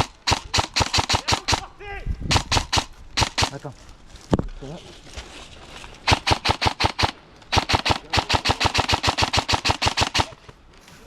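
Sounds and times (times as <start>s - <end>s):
airsoft gun rapid firing: 0.0s - 3.6s, 6.1s - 10.4s.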